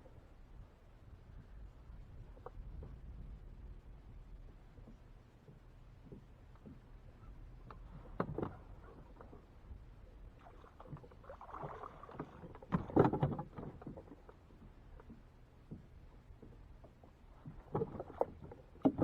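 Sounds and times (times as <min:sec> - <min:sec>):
knocks and clunks on kayak: 0:04.5 - 0:09.8, 0:10.4 - 0:19.0.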